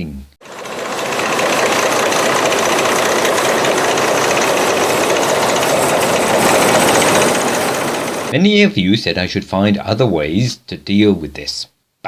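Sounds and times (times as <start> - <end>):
line shaft running: 0.4 - 8.4
tin roof rattling: 0.4 - 8.4.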